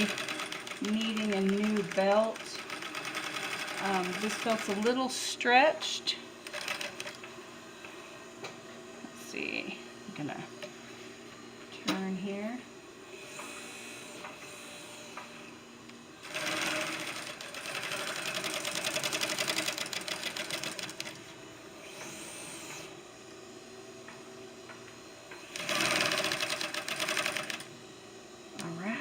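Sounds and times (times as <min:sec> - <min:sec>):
sewing machine stitching: 0:00.0 - 0:05.0, 0:06.4 - 0:07.2, 0:16.2 - 0:21.2, 0:25.5 - 0:27.7.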